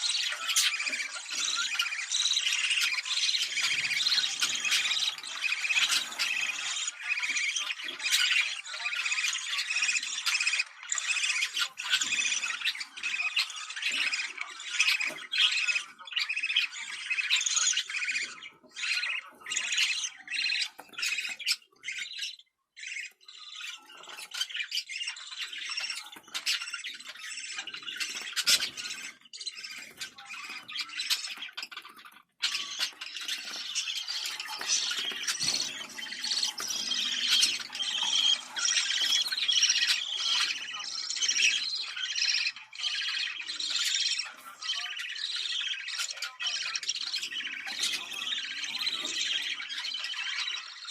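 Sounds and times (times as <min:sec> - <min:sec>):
budgerigars chattering: 0:00.0 - 0:50.9.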